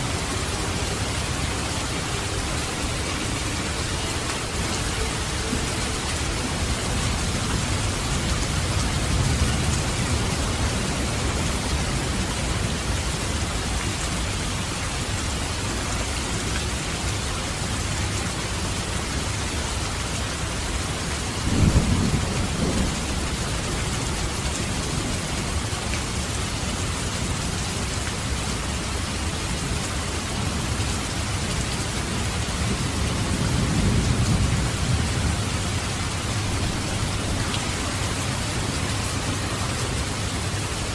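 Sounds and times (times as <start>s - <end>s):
heavy rain hissing: 0.0s - 40.9s
thunder rumbling: 21.4s - 23.6s.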